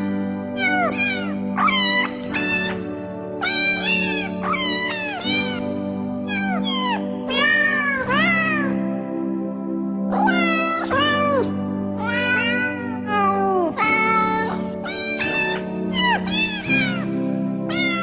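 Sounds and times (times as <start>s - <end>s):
cat meows pitched to a tune: 0.6s - 2.8s, 3.4s - 5.6s, 6.2s - 8.8s, 10.1s - 17.1s, 17.7s - 18.0s.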